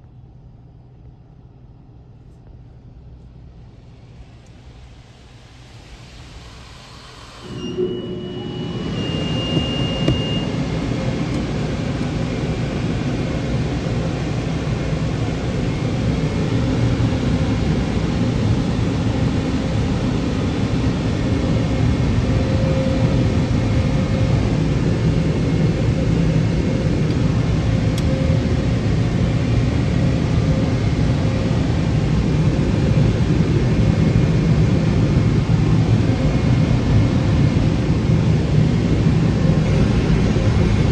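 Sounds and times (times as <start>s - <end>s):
car wash equipment rushing: 5.6s - 40.9s
brief high beep: 7.4s - 10.9s.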